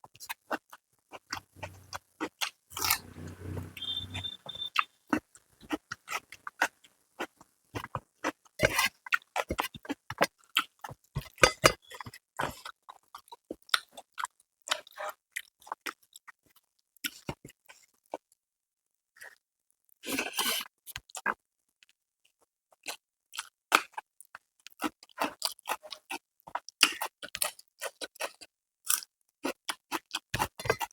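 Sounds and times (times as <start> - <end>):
person chewing and smacking food: 22.9 - 24.0, 24.7 - 30.9.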